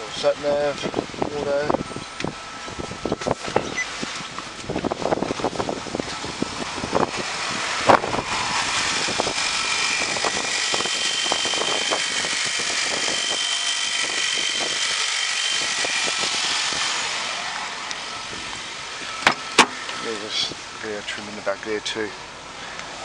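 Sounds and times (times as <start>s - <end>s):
car engine idling: 14.8s - 23.0s.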